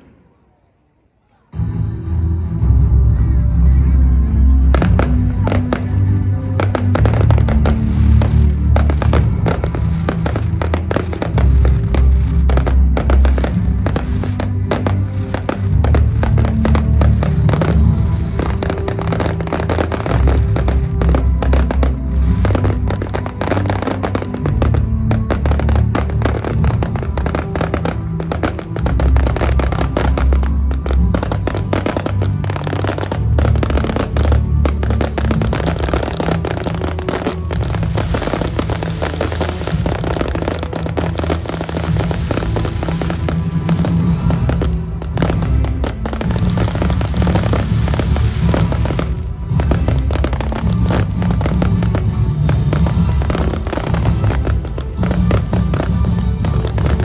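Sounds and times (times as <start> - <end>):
music with steady bass: 1.6 - 57.0
fireworks bangs and crackles: 4.6 - 57.0.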